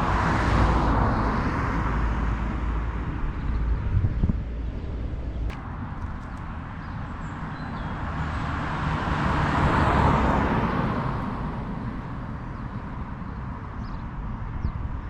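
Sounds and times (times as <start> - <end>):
car passing by: 5.5 - 12.4.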